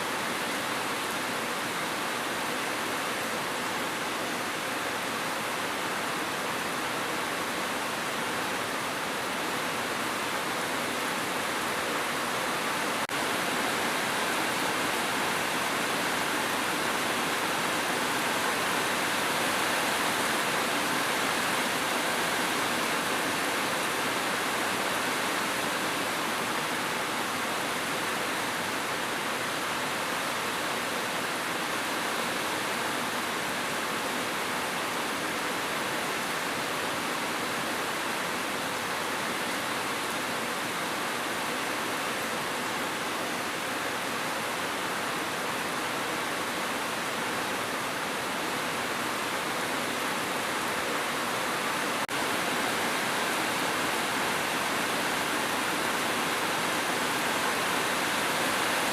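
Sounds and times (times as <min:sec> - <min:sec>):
steady rain: 0:00.0 - 0:58.9.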